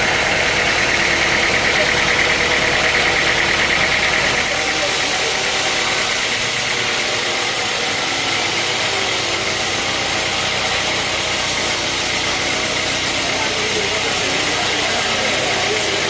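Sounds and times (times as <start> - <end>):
sawmill saw hissing and humming: 0.0 - 16.0.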